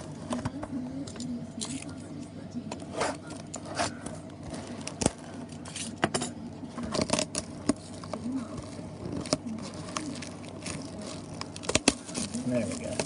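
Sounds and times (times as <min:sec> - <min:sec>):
plastic wrap crackling: 0:02.8 - 0:06.0, 0:06.7 - 0:13.0.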